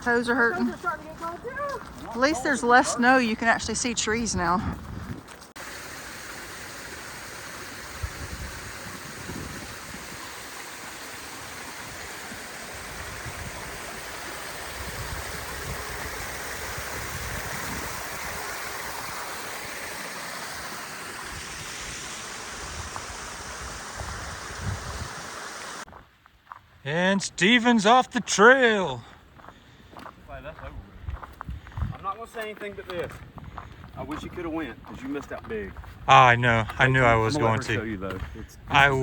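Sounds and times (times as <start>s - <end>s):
creek rushing over rocks: 5.5s - 25.9s.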